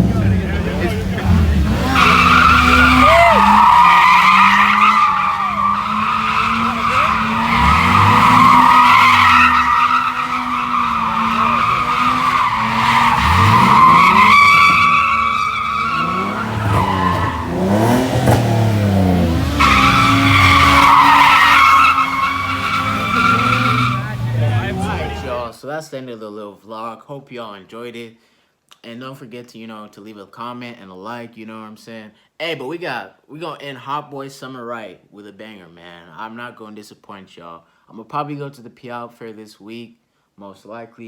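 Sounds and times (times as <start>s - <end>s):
car engine revving: 0.0s - 25.5s
tire squeal: 0.0s - 25.5s.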